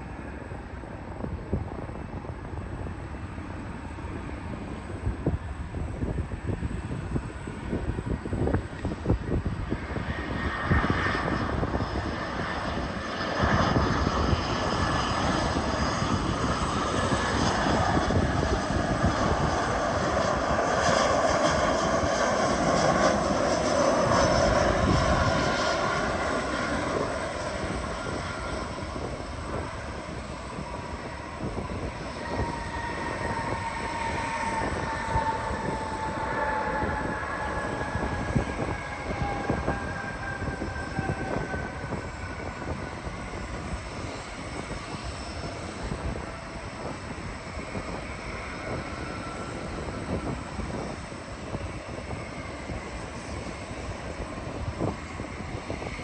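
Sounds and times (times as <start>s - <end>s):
jet airliner engines rushing: 0.0s - 56.0s
whining tones falling in pitch: 17.4s - 43.8s.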